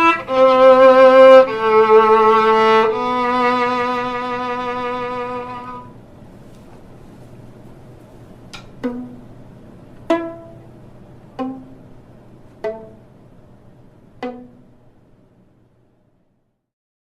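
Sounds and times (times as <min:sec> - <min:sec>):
violin plucked pizzicato: 0:00.0 - 0:06.0, 0:08.6 - 0:15.4
faint low hum: 0:00.0 - 0:16.7.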